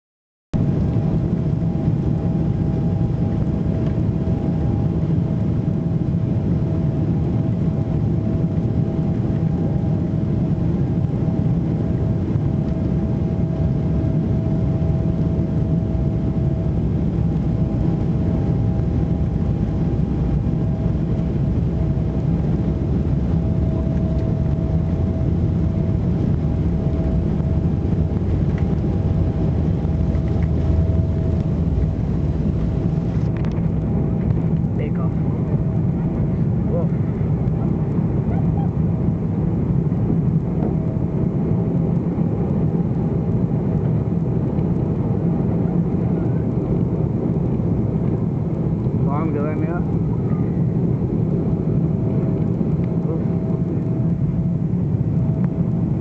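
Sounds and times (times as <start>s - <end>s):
jet engine rumble and whine: 0.6s - 56.0s.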